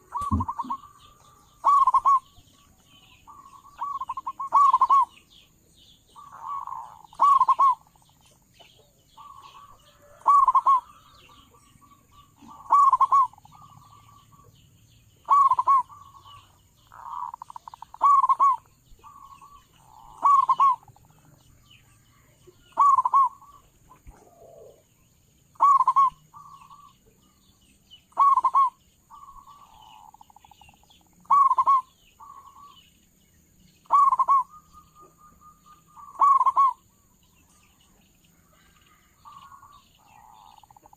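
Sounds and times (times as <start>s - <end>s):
dove cooing: 0.0s - 2.6s, 3.3s - 5.3s, 6.2s - 8.0s, 9.2s - 14.4s, 15.2s - 21.3s, 22.6s - 24.9s, 25.5s - 27.0s, 28.1s - 32.8s, 33.8s - 36.9s, 38.9s - 40.9s.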